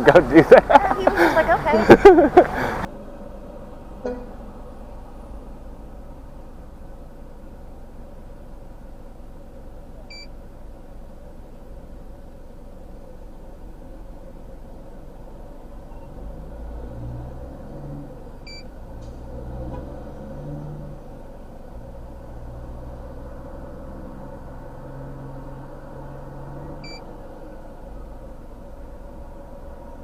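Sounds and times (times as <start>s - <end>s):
vehicle engine rumble: 0.0s - 30.0s
short electronic beeps: 26.8s - 27.0s.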